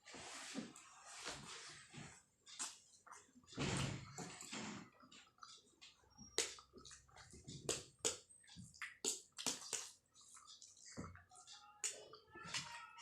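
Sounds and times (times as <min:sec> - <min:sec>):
person chewing noodles: 0:04.9 - 0:11.5.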